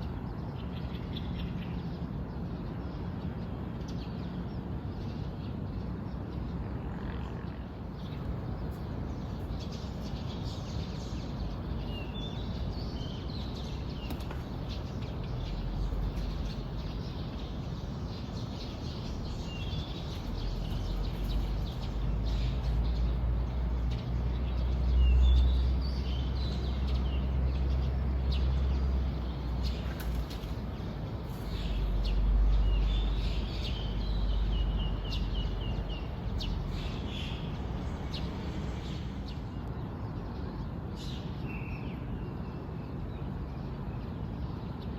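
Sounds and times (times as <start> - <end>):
birds chirping: 7.7 - 39.8.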